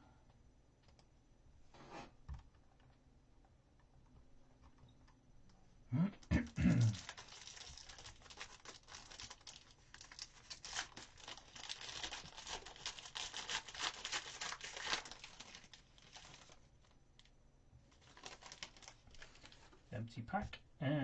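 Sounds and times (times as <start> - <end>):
plastic wrapper torn and crinkled: 6.7 - 17.3, 17.9 - 19.8.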